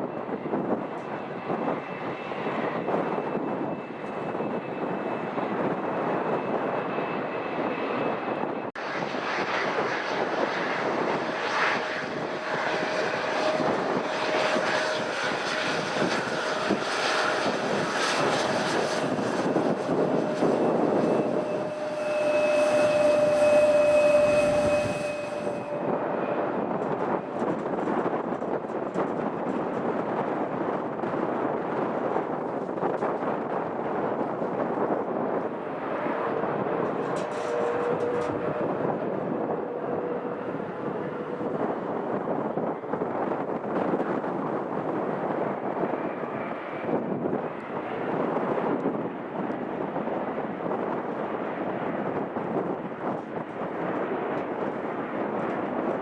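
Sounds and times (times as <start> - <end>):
high engine whine: 0.0 - 30.5, 32.3 - 47.9
airliner engines running: 0.0 - 56.0.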